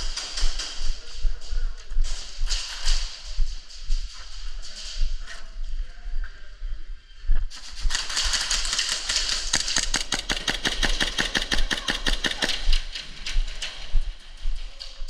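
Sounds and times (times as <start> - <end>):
airsoft gun rapid firing: 7.8 - 13.6.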